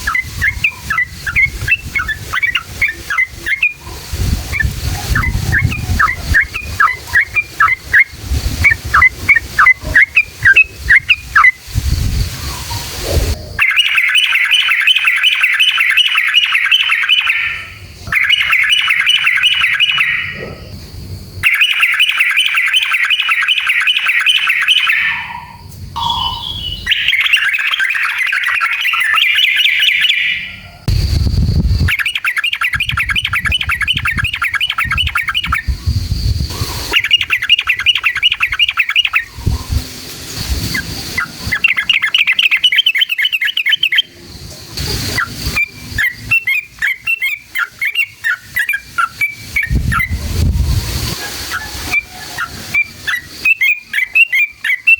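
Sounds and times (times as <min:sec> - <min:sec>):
bird singing rolling phrases: 0:00.0 - 0:54.9
low rumble: 0:49.8 - 0:51.4.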